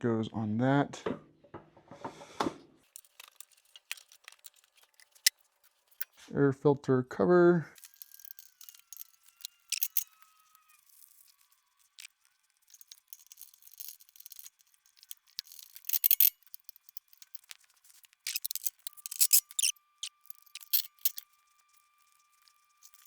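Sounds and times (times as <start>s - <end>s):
engine parts clicking and rattling: 2.9s - 6.2s, 10.9s - 21.2s.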